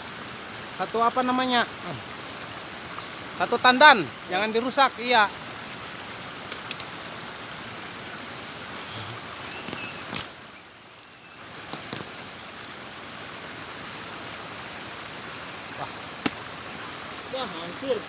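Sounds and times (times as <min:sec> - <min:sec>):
high insect chirp: 0:00.0 - 0:18.0
outdoor background noise: 0:00.0 - 0:18.0.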